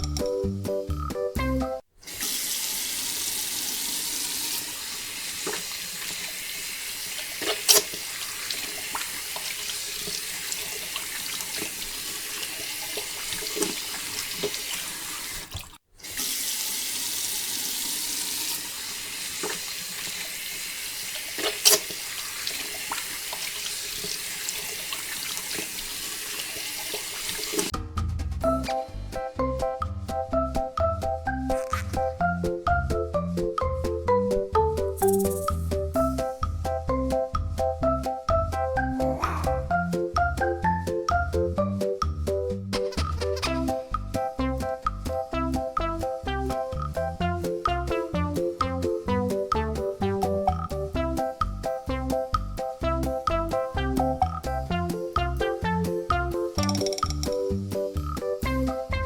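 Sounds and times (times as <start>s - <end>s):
water running in splashing stream: 2.0s - 27.7s.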